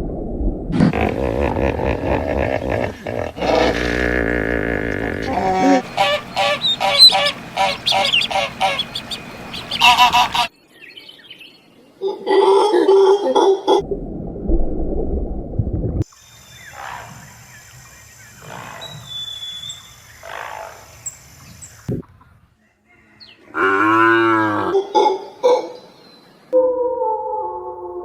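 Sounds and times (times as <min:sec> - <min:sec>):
animal growling: 0:00.8 - 0:08.6
high-pitched animal calls: 0:00.8 - 0:10.5
loud deep animal call: 0:00.8 - 0:10.5.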